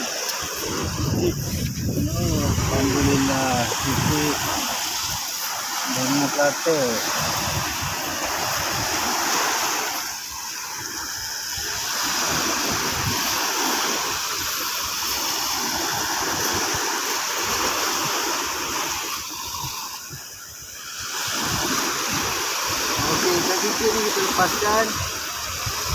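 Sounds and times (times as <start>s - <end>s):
sea surf washing in shallows: 0.0s - 25.9s.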